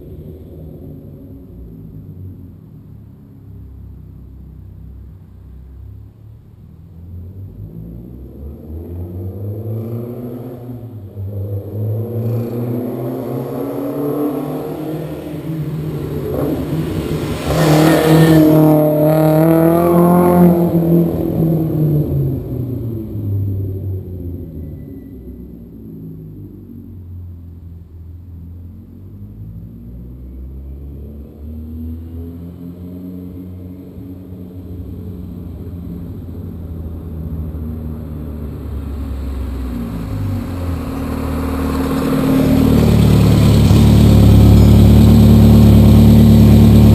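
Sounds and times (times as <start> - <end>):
car engine revving: 0.0 - 24.6, 25.7 - 46.9
four-cylinder engine running steadily: 33.9 - 46.9.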